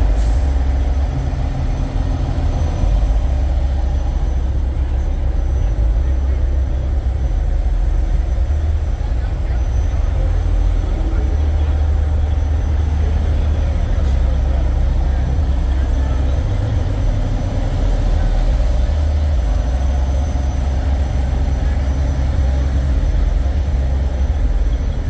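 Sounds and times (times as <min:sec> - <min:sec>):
diesel truck engines idling: 0:00.0 - 0:25.0.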